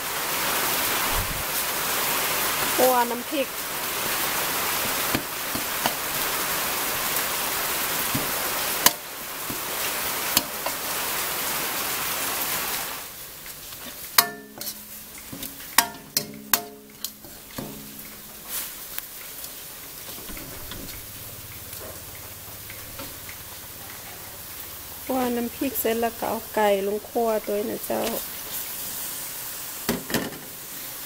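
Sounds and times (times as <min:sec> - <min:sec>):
paste sizzling in a pan: 0:00.1 - 0:31.0
utensil scraping pan: 0:13.7 - 0:19.0
metal utensil knocking on pan: 0:14.2 - 0:18.0.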